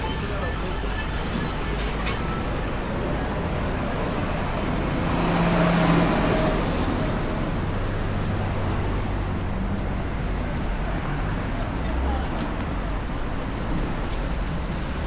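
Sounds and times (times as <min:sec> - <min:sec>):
rain and road noise: 0:00.0 - 0:15.0.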